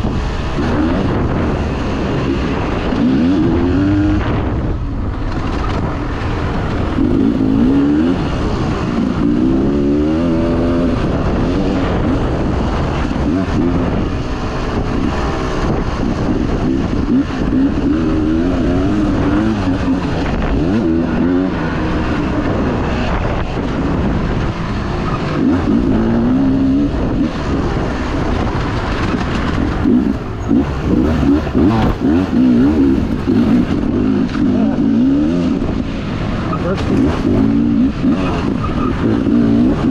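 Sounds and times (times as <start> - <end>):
dirt bike engine revving: 0.0 - 39.9
wind and track noise: 0.0 - 39.9.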